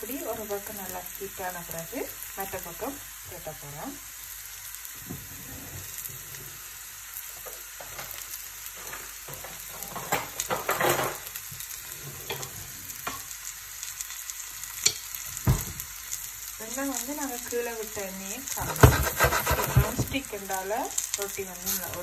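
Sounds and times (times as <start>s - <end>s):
flatbread sizzling in a pan: 0.0s - 22.0s
oil crackling: 15.3s - 22.0s.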